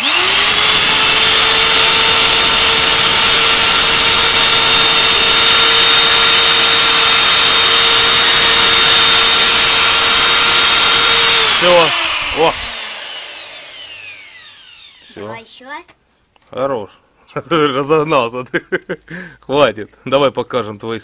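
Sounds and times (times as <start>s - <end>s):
electric router whining: 0.0s - 15.4s.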